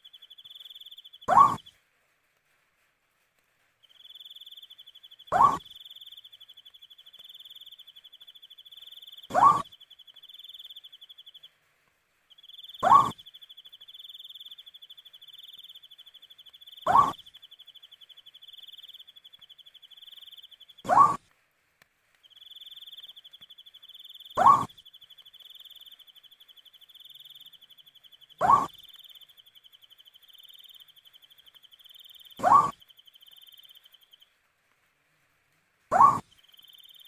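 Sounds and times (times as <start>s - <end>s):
owl hooting: 0.0s - 1.7s, 5.3s - 6.1s, 9.0s - 9.8s, 12.6s - 13.4s, 16.7s - 17.3s, 20.8s - 21.2s, 24.2s - 24.8s, 28.3s - 29.1s, 32.0s - 33.6s, 35.9s - 37.0s.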